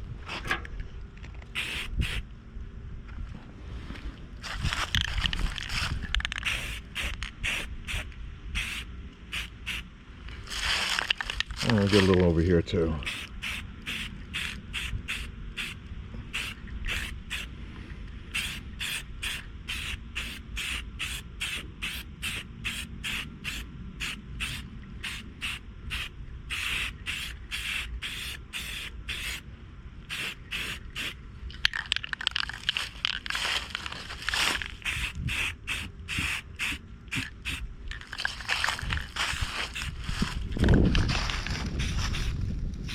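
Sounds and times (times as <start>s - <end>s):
spray paint can hissing: 1.5s - 2.2s, 4.6s - 9.8s, 13.0s - 17.5s, 18.3s - 29.4s, 30.1s - 38.5s, 41.7s - 42.9s.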